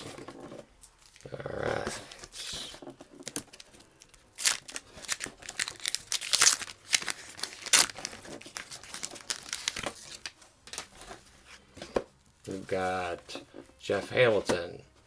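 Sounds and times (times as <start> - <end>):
wax paper wrapper tearing: 0.9 - 11.1.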